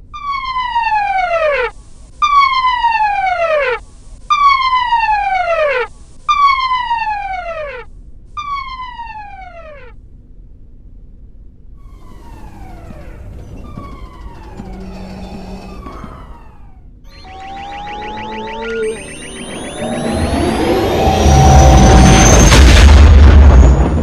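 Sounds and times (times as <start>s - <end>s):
electronic siren tone sliding down: 11.8s - 23.1s.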